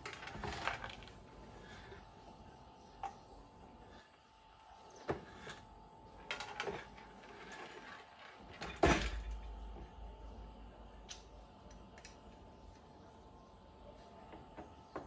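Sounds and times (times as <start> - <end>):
faint steady hum: 0.0 - 15.0
clicks and knocks of tools: 11.1 - 12.4.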